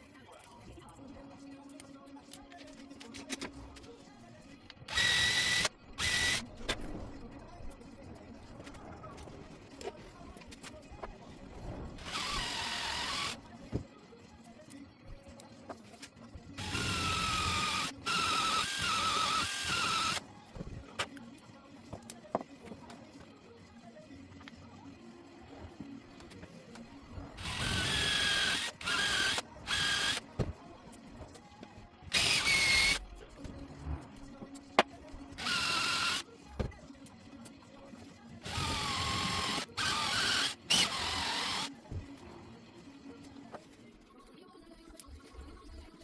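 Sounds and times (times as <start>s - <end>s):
power tool motor whining: 4.9s - 6.5s, 16.6s - 20.2s, 27.4s - 30.2s, 32.1s - 33.0s, 38.5s - 41.7s.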